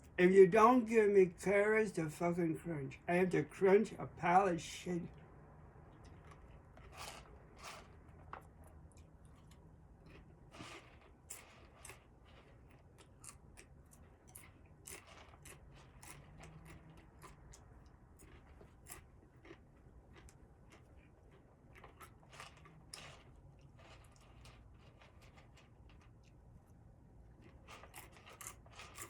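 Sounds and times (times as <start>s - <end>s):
person chewing crunchy snack: 6.0s - 26.1s, 27.3s - 29.0s.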